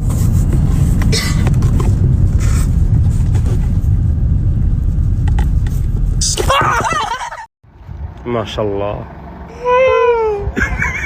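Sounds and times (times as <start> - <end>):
loud low rumble: 0.4 - 7.0.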